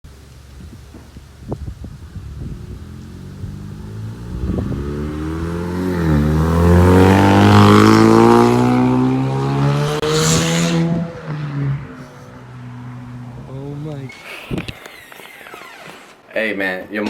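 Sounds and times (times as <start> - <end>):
car engine accelerating hard: 2.1 - 13.9.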